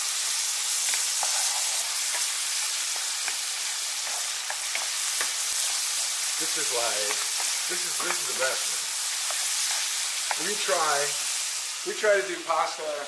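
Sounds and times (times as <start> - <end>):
food sizzling in hot oil: 0.0 - 13.0
wooden spoon knocking pan: 7.0 - 8.4.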